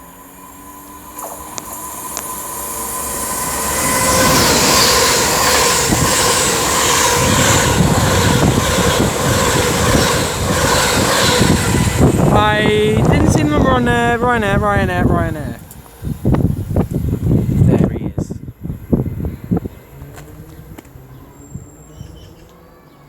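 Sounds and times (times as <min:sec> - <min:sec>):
wheels clacking over track: 0:00.0 - 0:17.7
electric train passing at speed: 0:00.0 - 0:23.0.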